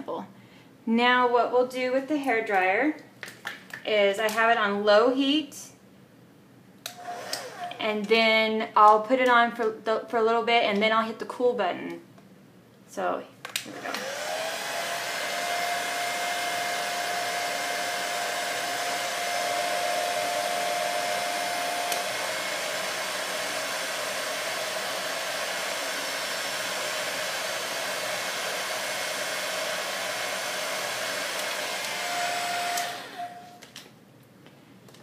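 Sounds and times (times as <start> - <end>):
hair dryer running: 6.9 - 7.8, 13.6 - 33.6
hair dryer button click: 21.9 - 22.2, 31.3 - 32.1, 32.7 - 33.2.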